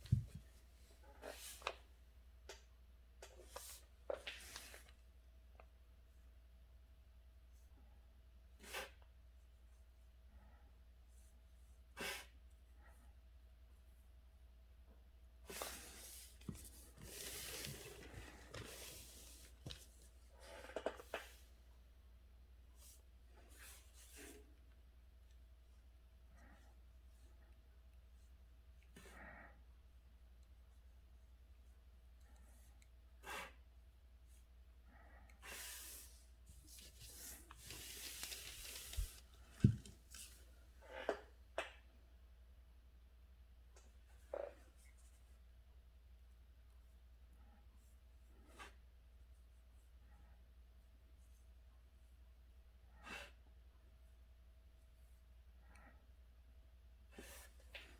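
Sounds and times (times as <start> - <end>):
paper rustling and sliding: 15.7 - 20.0, 36.5 - 40.4
brush swishing on paper: 35.4 - 39.8.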